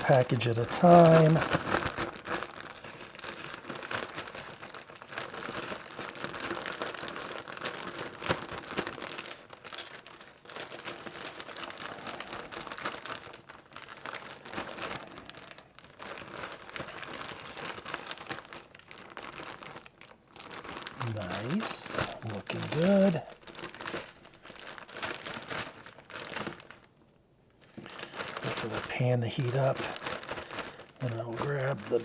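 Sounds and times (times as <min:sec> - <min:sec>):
plastic crinkling and rustling: 0:00.0 - 0:32.0.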